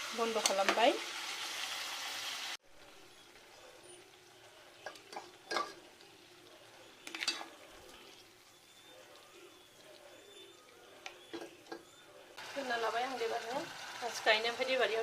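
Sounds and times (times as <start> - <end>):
curry sizzling in a pan: 0.0 - 15.0
cookware clinking and knocking: 4.8 - 5.9, 7.1 - 7.6, 11.3 - 11.9.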